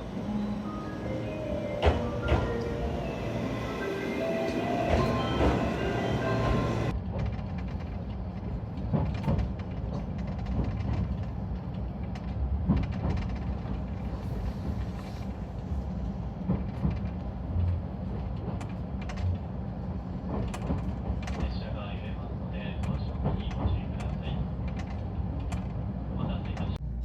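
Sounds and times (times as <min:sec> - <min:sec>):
train carriage rumble: 0:00.0 - 0:27.0.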